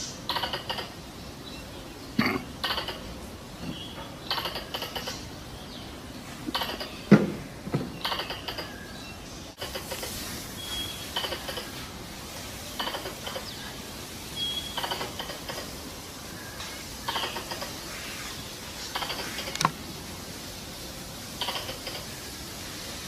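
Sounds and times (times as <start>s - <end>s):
squirrel call chattering: 0.2s - 1.0s, 2.6s - 3.1s, 4.2s - 5.3s, 6.5s - 7.1s, 8.0s - 8.8s, 10.7s - 11.8s, 12.8s - 13.6s, 14.4s - 15.8s, 17.0s - 18.0s, 18.8s - 19.7s, 21.4s - 22.1s.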